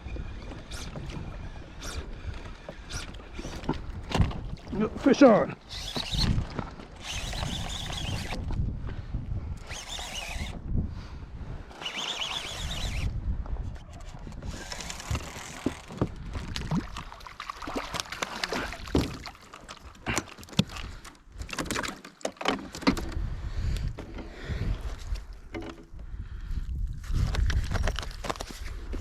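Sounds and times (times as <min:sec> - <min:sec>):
wind on microphone: 0:00.0 - 0:05.0, 0:05.7 - 0:17.3, 0:22.9 - 0:29.0
fishing reel clicking: 0:07.0 - 0:08.4, 0:09.6 - 0:10.6, 0:11.8 - 0:13.2.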